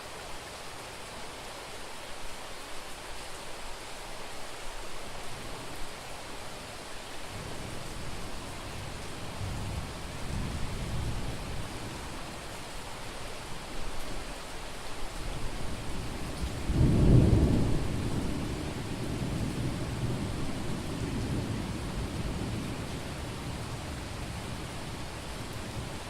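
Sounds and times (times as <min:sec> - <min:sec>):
heavy rain: 0:00.0 - 0:26.0
thunder rumbling: 0:16.4 - 0:23.6.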